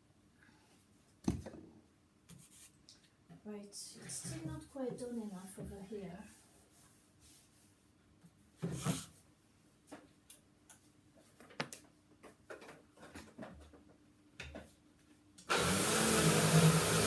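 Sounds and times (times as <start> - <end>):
electric sander running: 15.5 - 17.0.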